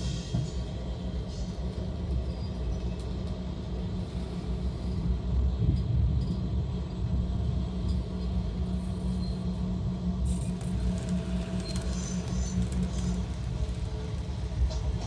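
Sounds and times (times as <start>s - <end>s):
model train rumbling: 10.5s - 15.0s.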